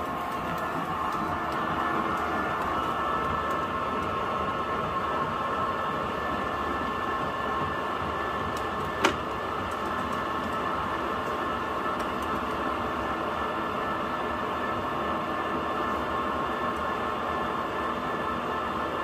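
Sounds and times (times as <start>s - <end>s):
woodworking lathe whining: 0.0s - 19.0s.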